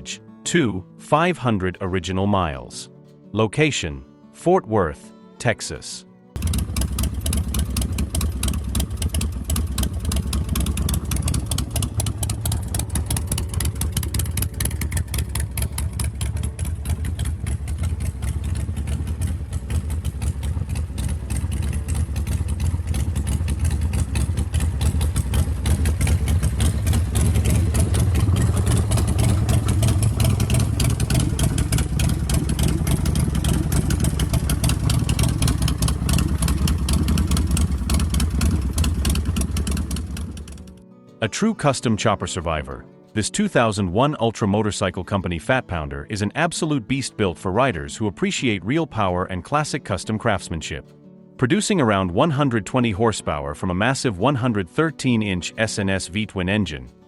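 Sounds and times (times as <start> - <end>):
motorcycle engine idling: 6.4 - 40.8.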